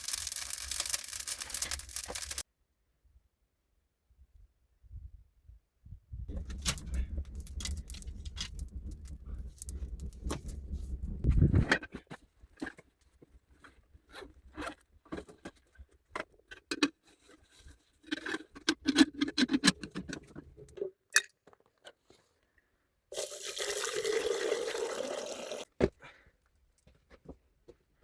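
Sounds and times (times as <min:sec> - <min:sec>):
small clicks and knocks: 0:00.0 - 0:02.4
water pouring into container: 0:00.0 - 0:02.4, 0:23.1 - 0:25.7.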